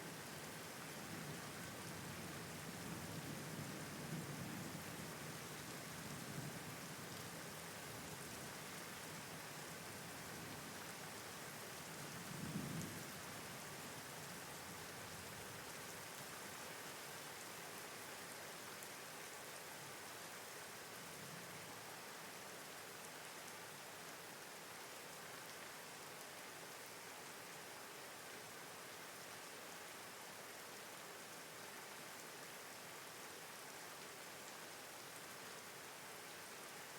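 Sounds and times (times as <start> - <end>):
steady rain: 0.0 - 36.9
low rumble of thunder: 1.0 - 5.4, 12.0 - 13.4.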